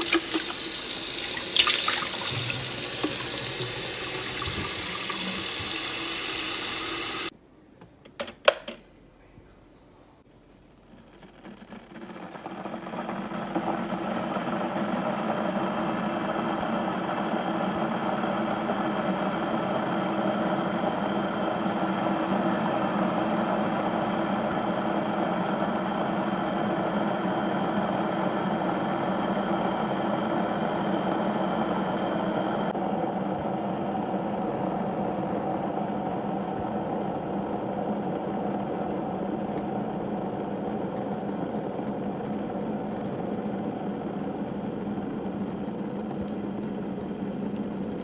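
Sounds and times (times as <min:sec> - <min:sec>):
electric kettle rumbling: 0:00.0 - 0:07.3.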